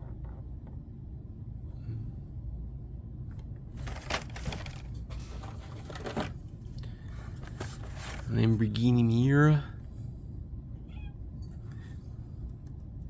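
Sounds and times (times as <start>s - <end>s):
low steady hum: 0.0s - 13.0s
plastic and card crinkling: 3.8s - 8.5s.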